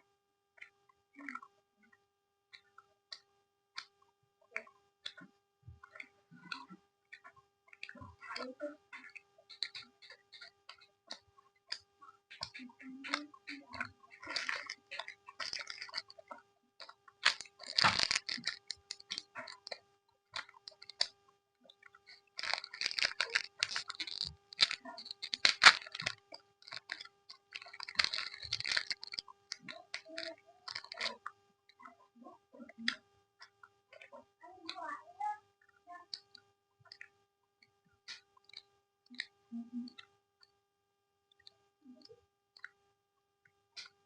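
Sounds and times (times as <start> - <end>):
chewing and crunching candy: 4.5 - 35.0, 35.6 - 40.1.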